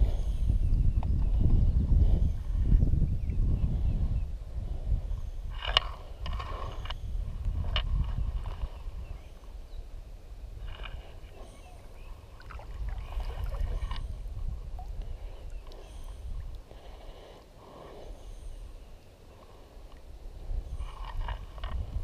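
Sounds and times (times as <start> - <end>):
steady low rumble: 0.0 - 22.0
small water sounds: 5.4 - 22.0.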